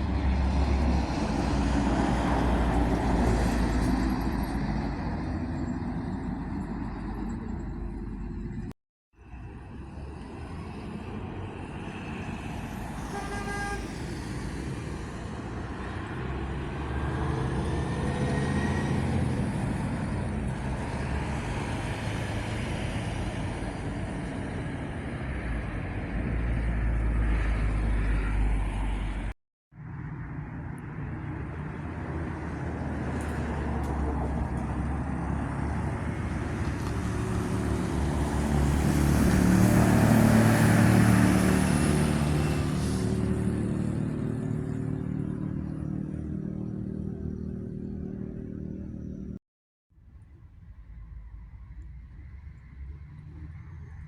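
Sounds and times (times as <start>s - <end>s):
bus diesel engines running: 0.0s - 8.7s, 9.6s - 29.3s, 30.2s - 49.3s
bus horn toot: 13.0s - 14.0s.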